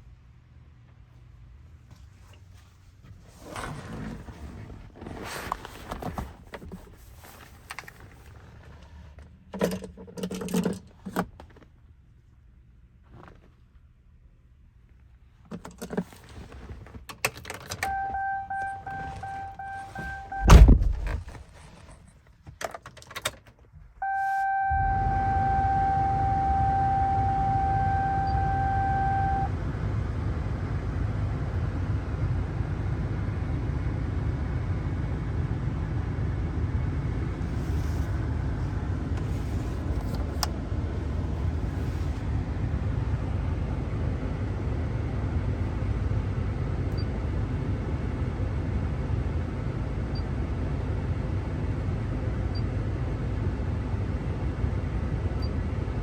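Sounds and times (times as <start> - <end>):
diesel engine starting and idling: 17.4 - 21.9, 24.0 - 56.0
cab warning chime: 17.8 - 20.6, 24.0 - 29.5
door shutting with heavy thunk: 20.4 - 21.3.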